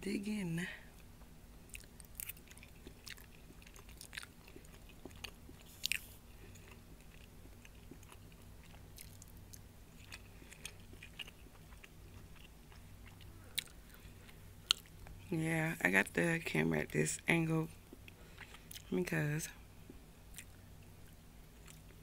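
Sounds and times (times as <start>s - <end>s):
faint low hum: 0.0s - 22.0s
chewing and mouth sounds: 1.7s - 15.2s, 17.8s - 18.9s, 19.8s - 22.0s.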